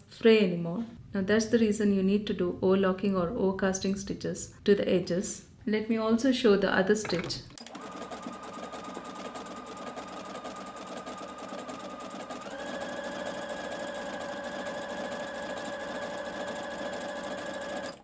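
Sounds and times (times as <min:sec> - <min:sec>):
sewing machine running: 0:07.6 - 0:18.0.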